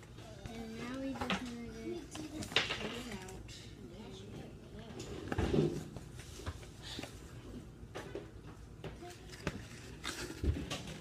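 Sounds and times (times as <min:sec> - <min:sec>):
plastic and cardboard packaging rustling: 0:09.0 - 0:11.0.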